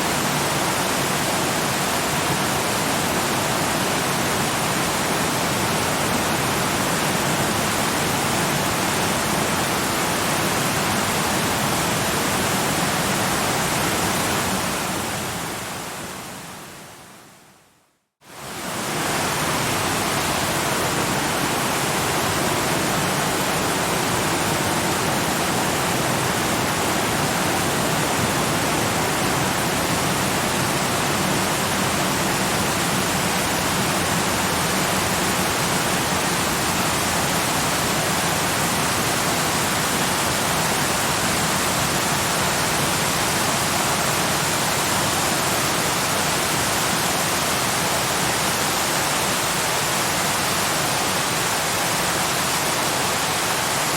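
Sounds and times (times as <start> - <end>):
waterfall rushing: 18.3 - 53.9.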